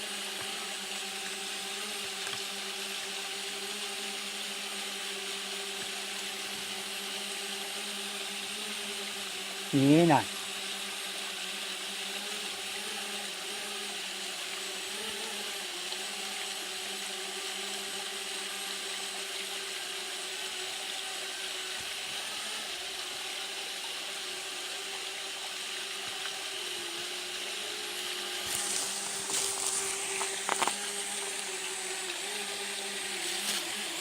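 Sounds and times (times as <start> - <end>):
steady rushing hiss: 25.3 - 34.0
drone propellers whirring: 26.7 - 34.0.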